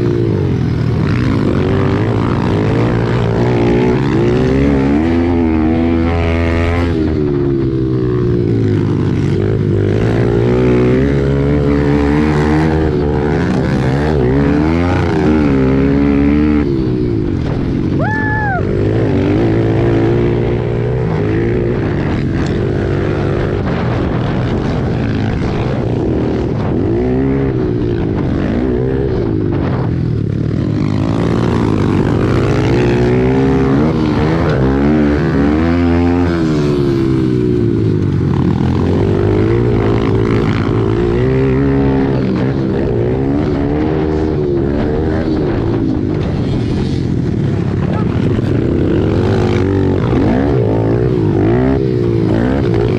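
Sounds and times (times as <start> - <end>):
pit bike engines revving: 0.0 - 52.9.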